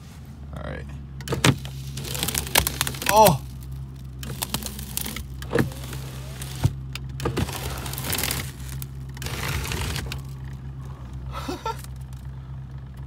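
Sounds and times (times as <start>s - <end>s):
car engine idling: 0.0s - 13.0s
crackling crinkling noise: 1.5s - 13.0s.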